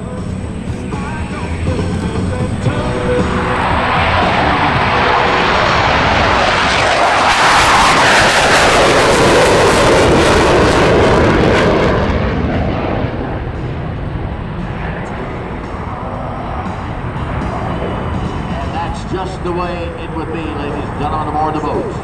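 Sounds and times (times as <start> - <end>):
jet flying past on afterburner: 0.5 - 22.0.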